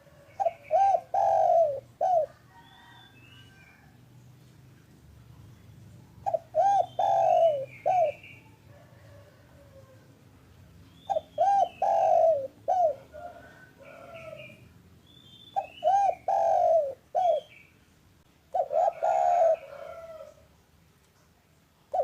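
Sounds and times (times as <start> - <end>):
dove cooing: 0.0 - 3.8, 6.2 - 10.1, 11.0 - 14.6, 15.6 - 17.6, 18.5 - 20.5.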